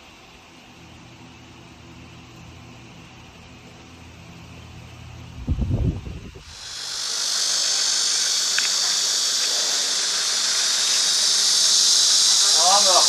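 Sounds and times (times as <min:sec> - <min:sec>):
high-pitched hiss: 0:05.4 - 0:13.0.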